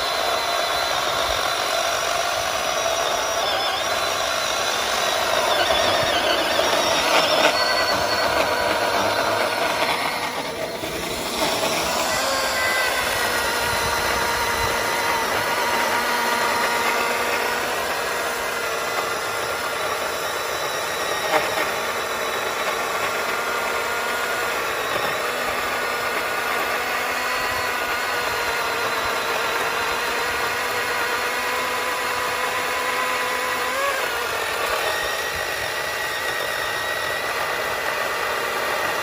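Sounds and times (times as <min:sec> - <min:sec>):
cordless chainsaw cutting: 0:00.0 - 0:39.0.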